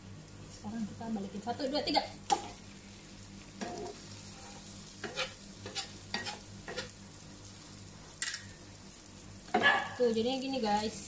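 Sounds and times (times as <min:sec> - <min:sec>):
food sizzling in a pan: 0:00.0 - 0:11.0
spatula and knife scraping pan: 0:03.6 - 0:07.0.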